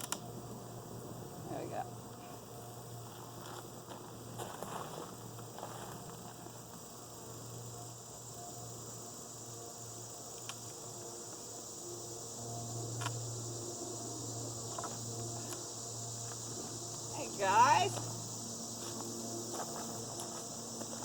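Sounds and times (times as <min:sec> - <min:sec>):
high insect drone: 0:00.0 - 0:21.0
honeybees buzzing: 0:00.6 - 0:21.0.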